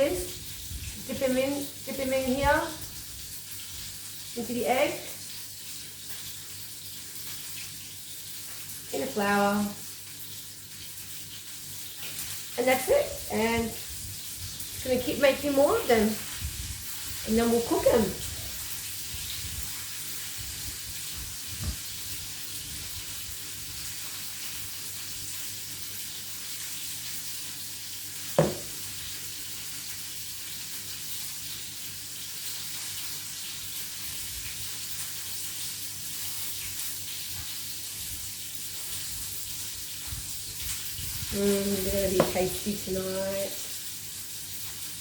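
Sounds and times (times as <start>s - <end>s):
chicken sizzling in oil: 0.0s - 45.0s
sharp knock: 28.4s - 28.8s.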